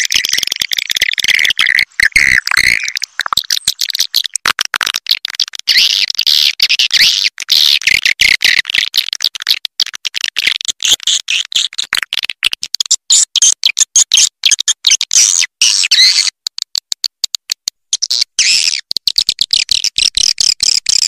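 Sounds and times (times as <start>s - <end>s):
swiftlet calls twittering: 0.0s - 4.3s.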